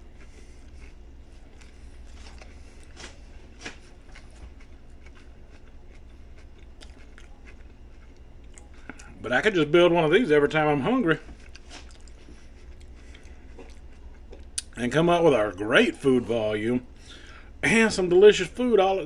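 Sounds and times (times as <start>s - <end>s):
person chewing sandwich: 0.0s - 9.5s, 11.2s - 14.8s
low steady hum: 0.0s - 19.0s
soft crunches and mouth clicks: 0.1s - 9.2s, 11.2s - 14.8s.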